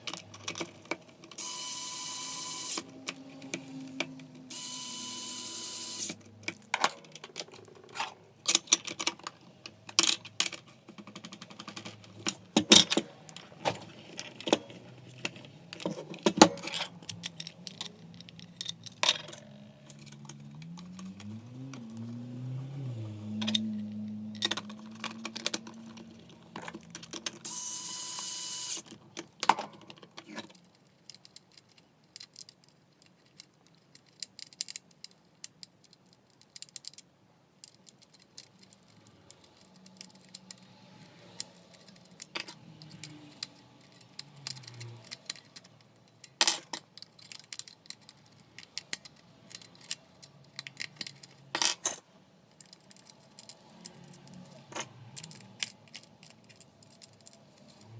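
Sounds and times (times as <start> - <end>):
plastic and metal parts rattling: 0.0 - 1.5, 5.9 - 27.6, 28.7 - 57.9
brief motor whirring: 1.4 - 3.0, 4.5 - 6.2, 27.5 - 28.8.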